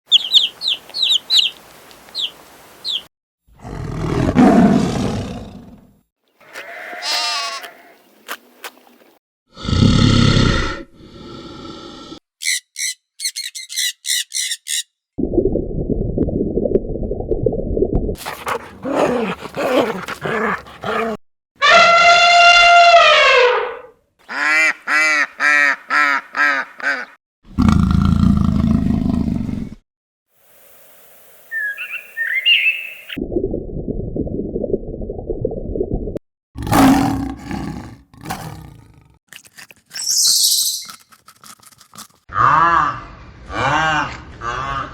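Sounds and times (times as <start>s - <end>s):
animal calls and cries: 0.1s - 3.1s, 12.4s - 14.9s, 18.2s - 23.8s.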